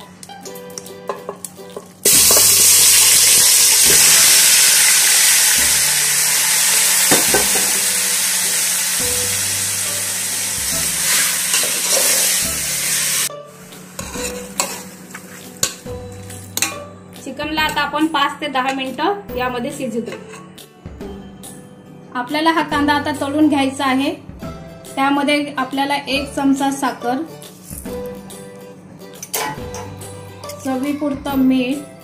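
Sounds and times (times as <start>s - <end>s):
chicken sizzling in hot oil: 2.0s - 13.3s.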